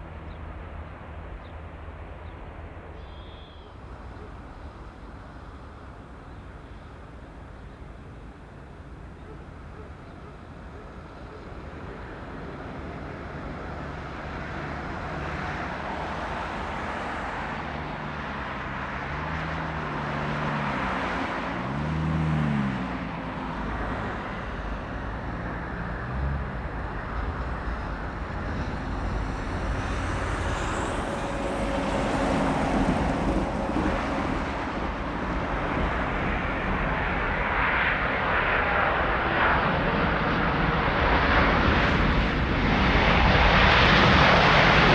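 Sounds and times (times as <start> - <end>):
high engine whine: 10.6 - 44.9
jet engines rushing: 22.6 - 44.9.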